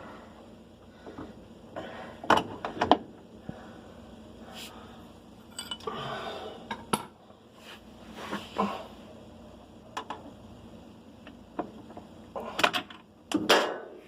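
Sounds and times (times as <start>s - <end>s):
metal tools clinking: 5.5s - 5.9s.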